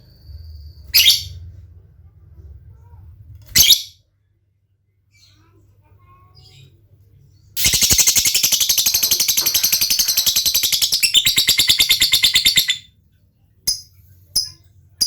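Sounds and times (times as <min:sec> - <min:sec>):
bird chattering rapidly: 0:07.6 - 0:12.8.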